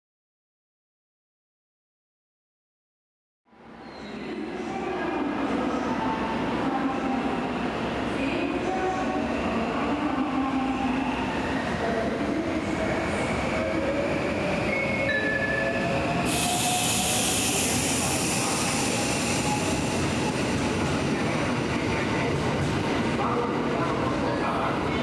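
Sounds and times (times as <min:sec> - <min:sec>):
loud high hiss: 0:16.3 - 0:19.9.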